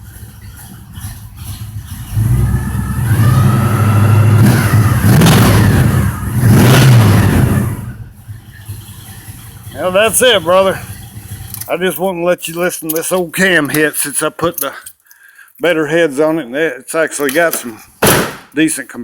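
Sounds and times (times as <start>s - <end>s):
car engine loping idle and revving: 0.0s - 11.8s.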